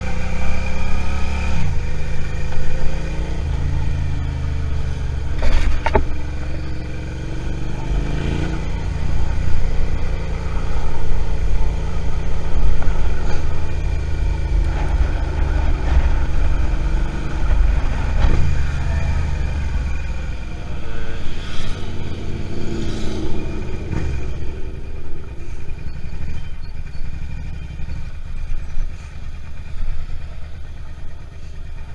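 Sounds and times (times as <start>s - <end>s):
motorcycle engine revving: 0.0s - 31.9s.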